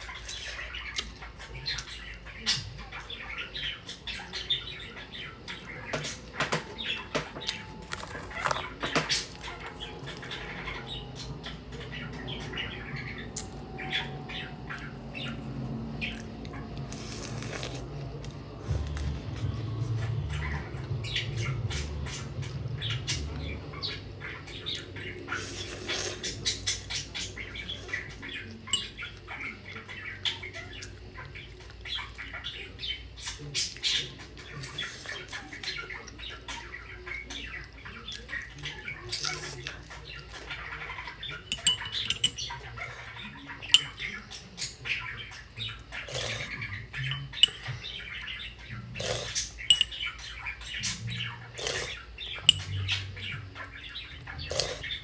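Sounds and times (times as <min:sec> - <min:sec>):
cracker crunching and chewing: 0:00.0 - 0:03.1, 0:05.4 - 0:11.2, 0:14.6 - 0:23.6, 0:33.3 - 0:44.6, 0:45.7 - 0:47.8
bird chirping: 0:00.0 - 0:17.8, 0:18.4 - 0:55.0
metal spoon clinking in mug: 0:41.5 - 0:42.5, 0:49.7 - 0:50.0, 0:52.5 - 0:52.8.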